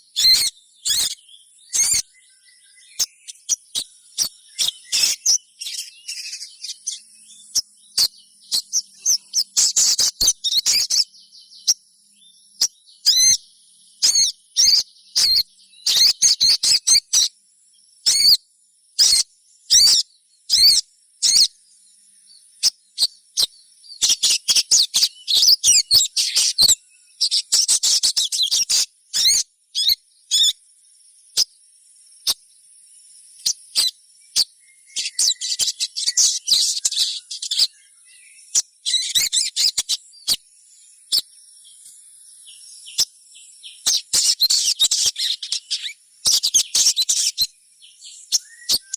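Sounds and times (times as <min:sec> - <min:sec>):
bird chirping and twittering: 0:00.0 - 0:48.9.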